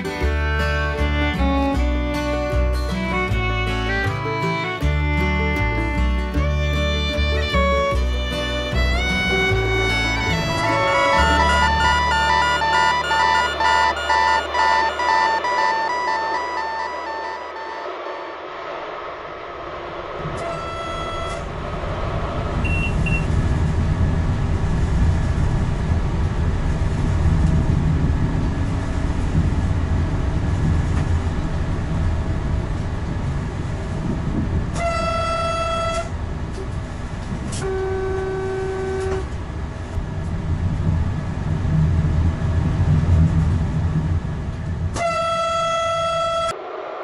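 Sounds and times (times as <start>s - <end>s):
lower tone: 0.0s - 29.6s
train running rumble: 0.0s - 47.0s
high tone: 8.3s - 19.0s, 20.3s - 21.6s.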